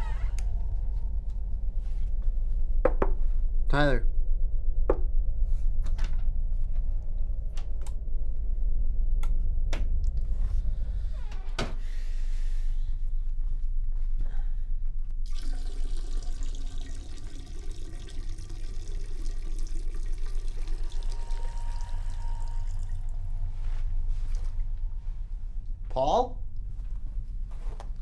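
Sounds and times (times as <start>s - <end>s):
steady low hum: 0.0s - 28.0s
tap water running into basin: 15.3s - 23.1s.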